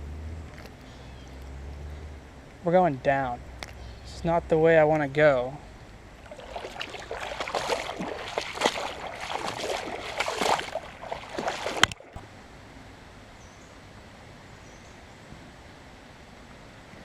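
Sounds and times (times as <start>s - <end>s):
creek water splashing: 5.8s - 12.3s.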